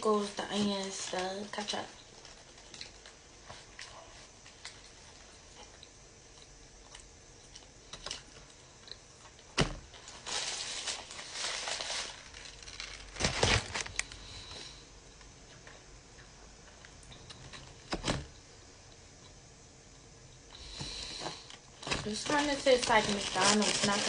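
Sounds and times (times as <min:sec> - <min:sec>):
paper wrapper crinkling: 0:00.2 - 0:05.1, 0:10.0 - 0:14.2, 0:21.5 - 0:24.0
person chewing food: 0:02.5 - 0:09.5.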